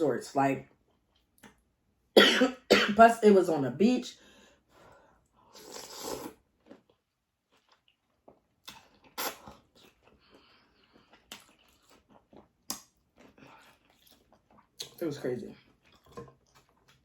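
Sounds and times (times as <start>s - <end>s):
wet chewing smacks: 7.6s - 15.0s.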